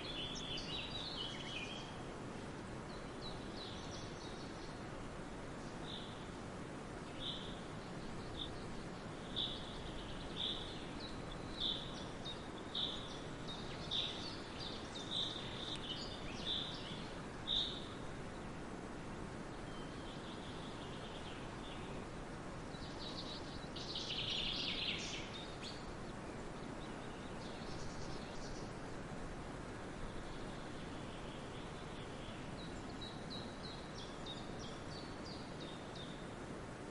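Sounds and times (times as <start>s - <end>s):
birds chirping: 0.0s - 2.0s, 2.6s - 6.4s, 7.0s - 18.6s, 19.3s - 28.9s
forest birds calling: 0.0s - 36.5s
steady background hiss: 0.0s - 36.9s.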